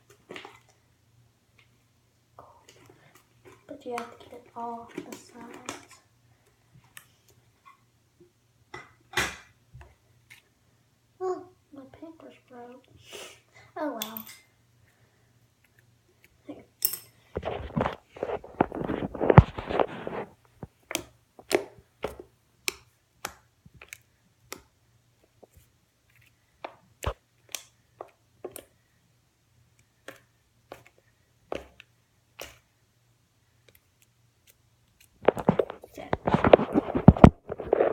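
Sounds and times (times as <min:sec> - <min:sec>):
slime squelching: 0:29.8 - 0:32.7.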